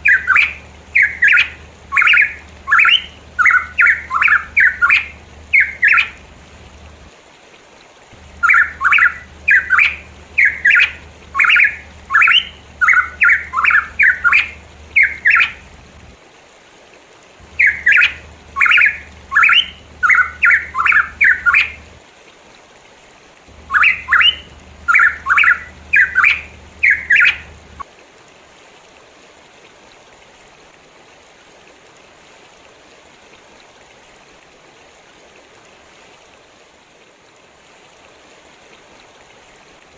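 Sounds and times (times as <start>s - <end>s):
bird calling rapid notes: 0.0s - 6.4s, 8.2s - 15.9s, 17.4s - 22.0s, 23.5s - 27.8s
soft rushing water: 0.0s - 39.9s.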